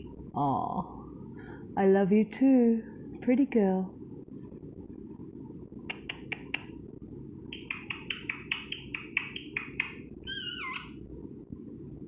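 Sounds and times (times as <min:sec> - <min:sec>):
parrot clicking: 0:05.9 - 0:06.8, 0:07.5 - 0:10.9
parrot chirping: 0:07.5 - 0:11.0
parrot squawk: 0:07.6 - 0:11.0.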